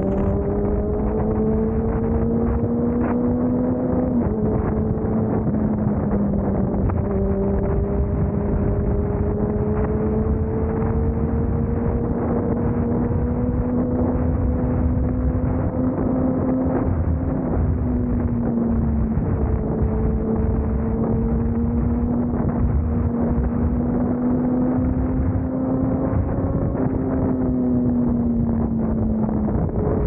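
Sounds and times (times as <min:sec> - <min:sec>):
vehicle engine running hard: 0:00.0 - 0:30.0
wind rushing over microphone: 0:00.0 - 0:30.0.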